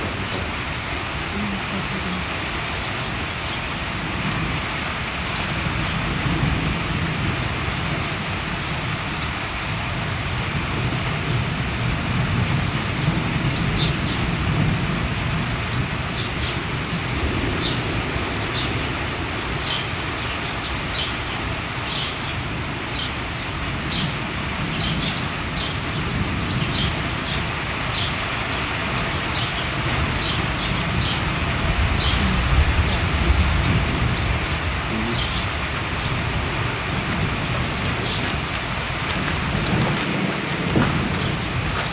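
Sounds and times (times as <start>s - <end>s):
thunder rumble: 0.0s - 20.6s, 22.4s - 41.9s
steady rain: 0.0s - 41.9s
bird chirping: 32.0s - 32.3s, 35.0s - 36.2s.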